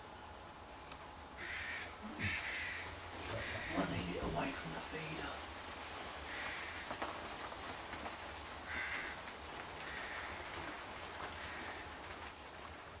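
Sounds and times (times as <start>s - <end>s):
bird harsh calls: 1.4s - 4.1s.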